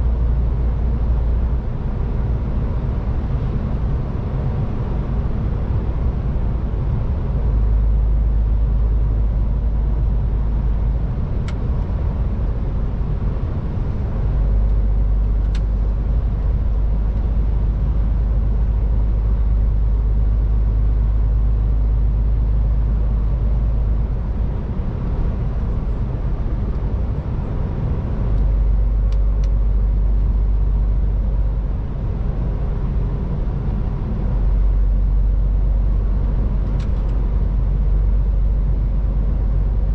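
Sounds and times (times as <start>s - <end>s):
deep low rumble: 0.0s - 39.9s
diesel truck engine running: 0.0s - 39.9s
road noise: 0.0s - 39.9s.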